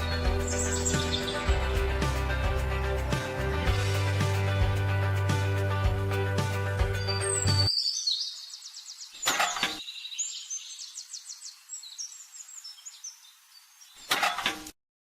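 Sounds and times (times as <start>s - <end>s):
birds chirping and trilling: 0.0s - 5.6s, 6.4s - 14.4s.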